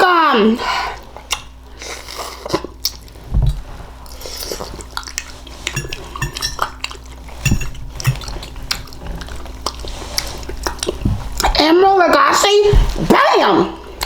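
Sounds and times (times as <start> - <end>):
cutlery clinking on a dish: 5.7 - 6.8, 7.4 - 8.3.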